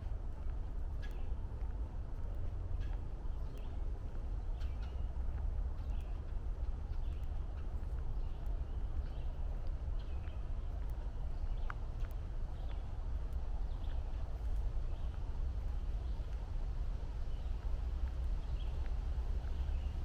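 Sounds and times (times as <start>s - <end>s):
footsteps on trail: 0.0s - 20.0s
songbirds chirping: 0.0s - 20.0s
steady low rumble: 0.0s - 20.0s.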